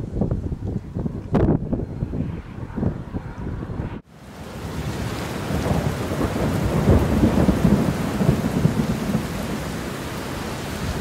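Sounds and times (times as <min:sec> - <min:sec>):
steady rain: 0:04.1 - 0:11.0
low rumble of thunder: 0:04.3 - 0:11.0.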